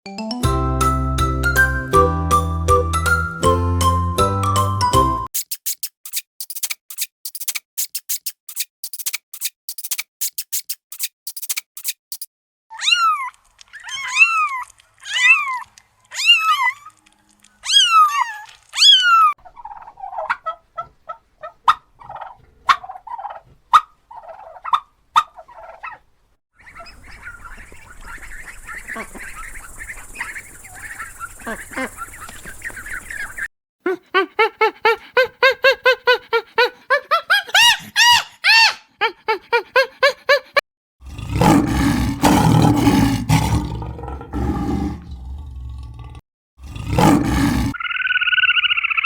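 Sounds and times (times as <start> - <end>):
sharp clicks: 5.4 - 12.3
chicken calls rising and falling: 12.7 - 26.0, 37.1 - 38.9, 47.0 - 49.0
chicken clucking: 19.4 - 26.0.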